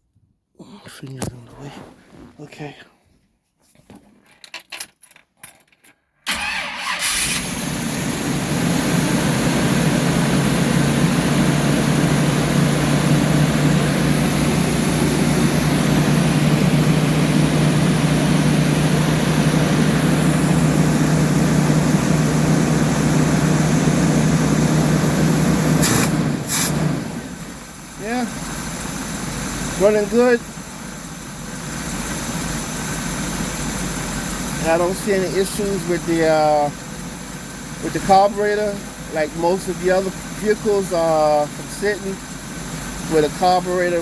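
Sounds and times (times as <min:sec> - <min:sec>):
car engine starting and running: 0:06.3 - 0:44.0.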